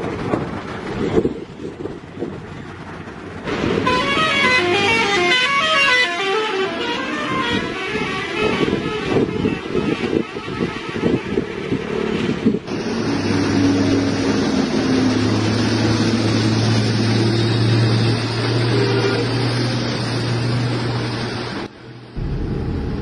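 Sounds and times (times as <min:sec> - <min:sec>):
uneven vehicle noise: 0:00.0 - 0:23.0
heavy diesel engine droning: 0:22.2 - 0:23.0.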